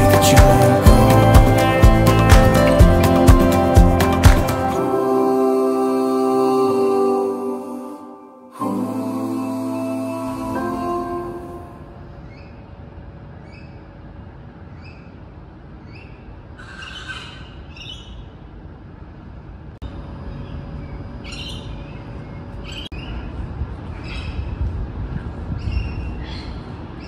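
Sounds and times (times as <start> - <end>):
birds chattering calls: 15.8 - 18.3, 20.2 - 23.3
steady low rumble: 17.6 - 27.0.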